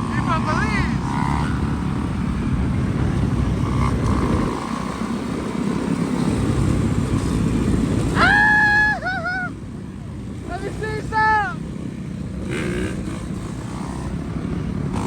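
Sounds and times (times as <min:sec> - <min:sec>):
dirt bike engine running: 0:00.0 - 0:08.2, 0:10.0 - 0:15.0
wind noise: 0:00.9 - 0:09.1.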